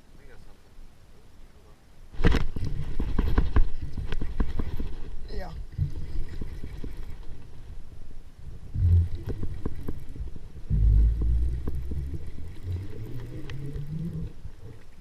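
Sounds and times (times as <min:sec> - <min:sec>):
microphone rumbling: 0:02.2 - 0:15.0.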